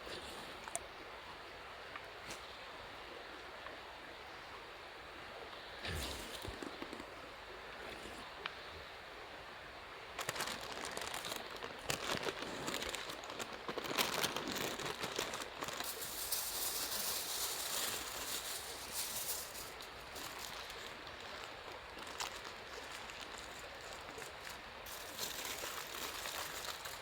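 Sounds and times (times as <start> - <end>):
aluminium foil crinkling: 10.2 - 27.0.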